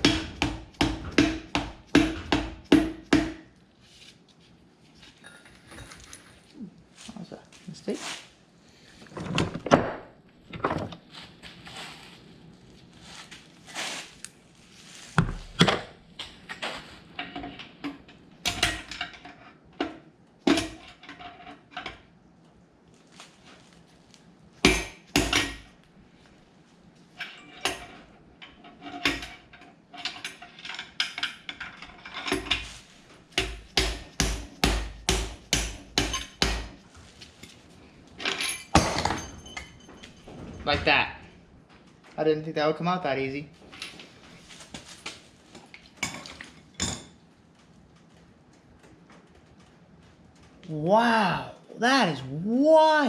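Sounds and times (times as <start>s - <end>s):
hammer striking metal: 0.0s - 3.5s, 24.6s - 25.6s, 33.4s - 36.8s.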